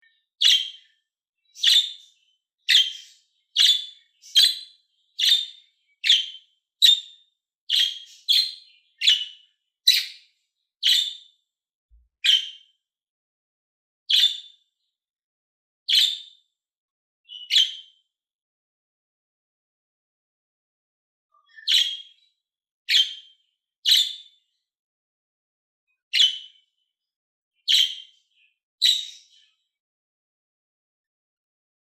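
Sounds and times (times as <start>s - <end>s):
budgerigar chirping: 0.4s - 0.8s, 1.6s - 2.1s, 2.7s - 10.2s, 10.8s - 11.2s, 12.2s - 12.6s, 14.1s - 14.4s, 15.9s - 16.2s, 17.3s - 17.8s, 21.5s - 22.1s, 22.9s - 23.3s, 23.9s - 24.2s, 27.7s - 28.1s, 28.8s - 29.3s.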